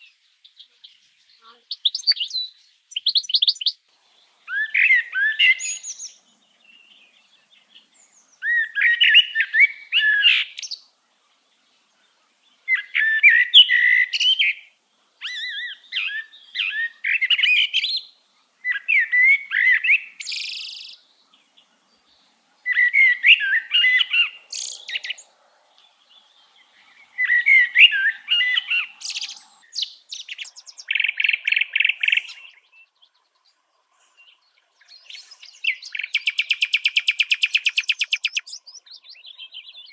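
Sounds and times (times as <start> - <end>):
songbird warbling: 0.8 - 39.9
rapid bird trill: 22.7 - 25.3, 26.0 - 32.6, 35.2 - 38.8.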